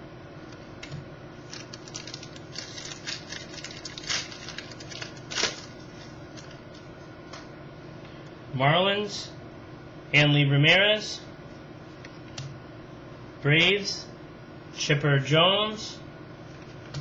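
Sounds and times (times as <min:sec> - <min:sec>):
trading cards clicking and rustling: 0:01.4 - 0:05.7.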